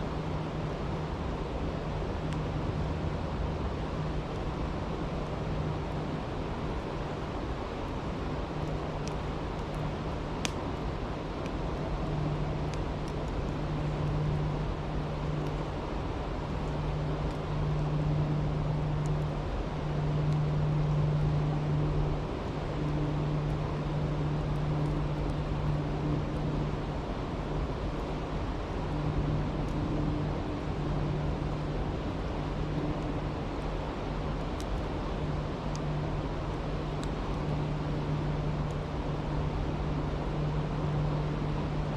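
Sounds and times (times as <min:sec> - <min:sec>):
campfire crackling: 0:00.1 - 0:41.9
low hum: 0:11.2 - 0:41.9.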